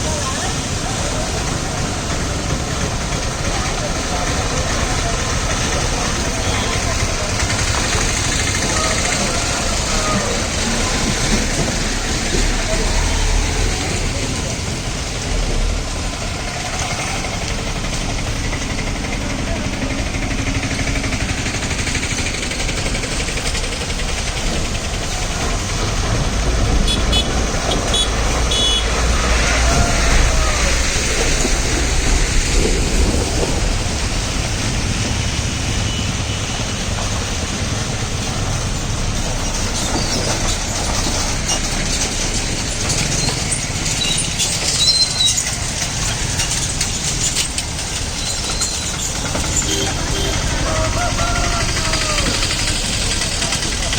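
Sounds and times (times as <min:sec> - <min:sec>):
diesel truck engine rumbling: 0:00.0 - 0:53.9.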